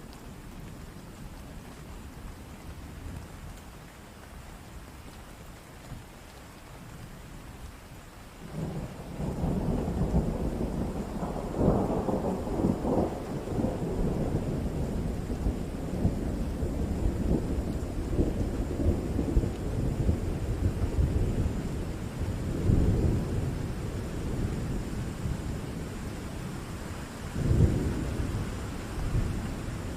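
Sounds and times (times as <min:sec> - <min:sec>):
steady rain: 0:00.0 - 0:29.9
thunder rumbling: 0:08.5 - 0:29.9.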